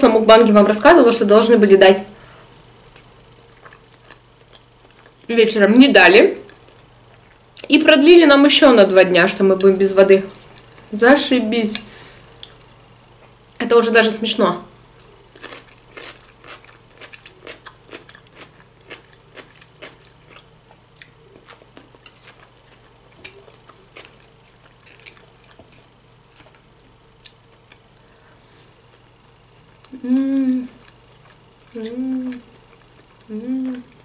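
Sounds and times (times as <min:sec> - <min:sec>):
chewing crunchy food: 0:02.5 - 0:05.3, 0:14.9 - 0:30.0, 0:30.7 - 0:34.0.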